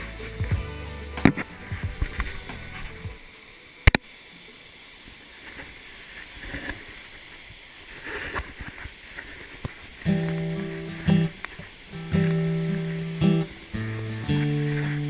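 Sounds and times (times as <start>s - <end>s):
soft outdoor hiss: 0.0s - 15.0s
plucked guitar music: 9.9s - 15.0s.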